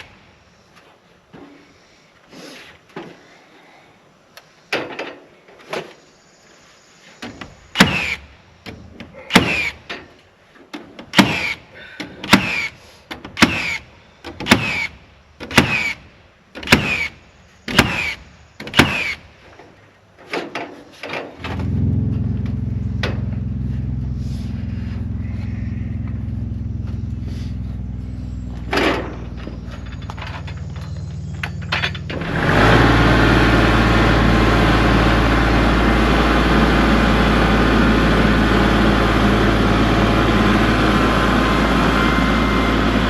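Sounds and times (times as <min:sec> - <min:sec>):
low motor hum: 0:21.4 - 0:43.0.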